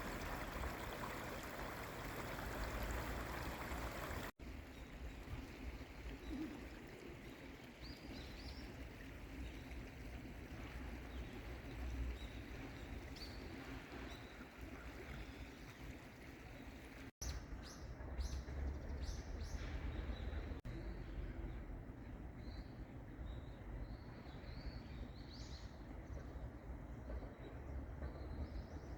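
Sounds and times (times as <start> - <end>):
flowing water rushing: 0.0 - 4.4.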